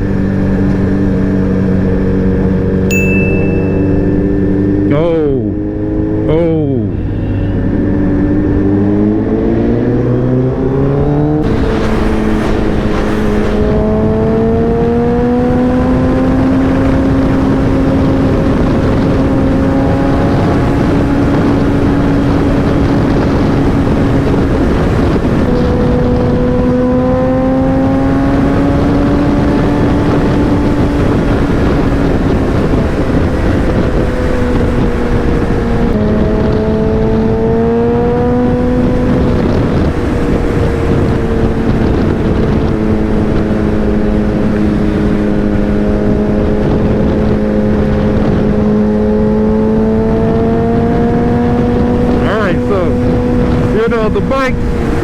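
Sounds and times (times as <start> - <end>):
wind noise rushing: 6.9 - 55.0
motorcycle engine running: 11.4 - 53.7.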